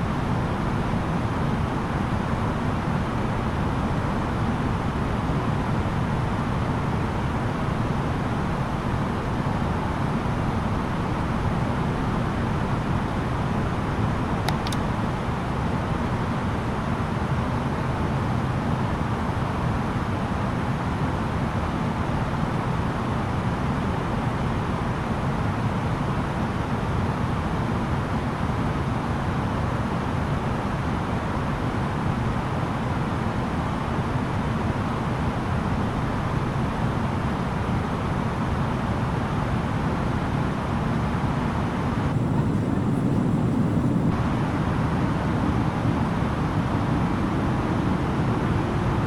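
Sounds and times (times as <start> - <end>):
airliner cabin engine and airflow rush: 0.0 - 49.0.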